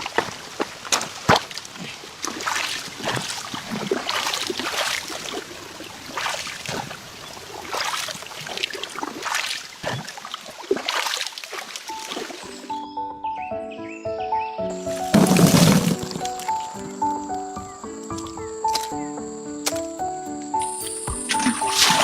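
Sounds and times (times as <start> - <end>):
water sloshing and splashing: 0.0 - 12.7, 14.9 - 17.0, 21.1 - 22.0.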